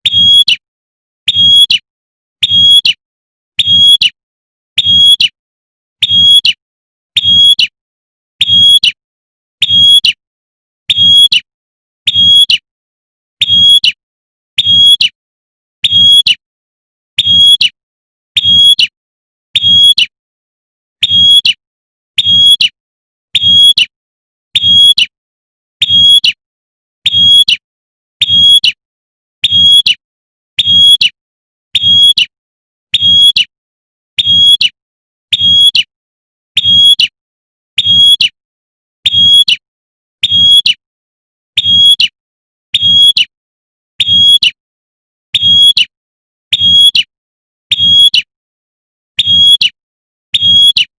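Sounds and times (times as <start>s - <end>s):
bird high sharp chirp call: 0.0s - 0.6s, 1.3s - 1.8s, 2.4s - 3.0s, 3.6s - 4.2s, 4.8s - 5.4s, 6.0s - 6.6s, 7.2s - 7.8s, 9.6s - 10.2s, 10.9s - 11.5s, 12.1s - 12.7s, 14.6s - 15.1s, 15.8s - 16.4s, 17.2s - 17.8s, 19.6s - 20.2s, 21.0s - 21.6s, 22.2s - 22.8s, 23.4s - 23.9s, 24.6s - 25.2s, 25.8s - 26.4s, 28.2s - 28.8s, 29.4s - 30.0s, 31.8s - 33.5s, 34.2s - 35.9s, 36.6s - 37.1s, 37.8s - 38.4s, 39.1s - 39.6s, 40.2s - 40.8s, 41.6s - 42.2s, 42.8s - 43.3s, 44.0s - 44.6s, 46.5s - 47.1s, 47.7s - 48.3s, 49.2s - 49.8s, 50.4s - 50.9s.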